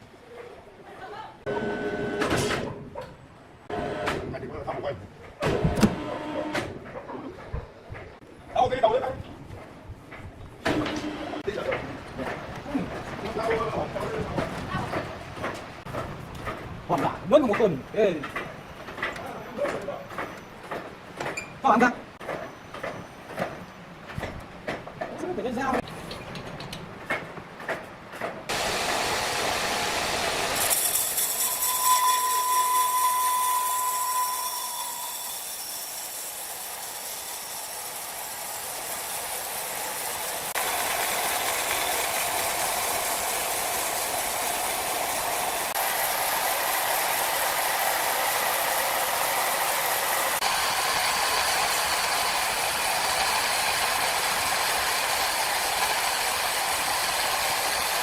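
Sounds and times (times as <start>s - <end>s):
sawmill machinery hissing: 28.5s - 58.0s.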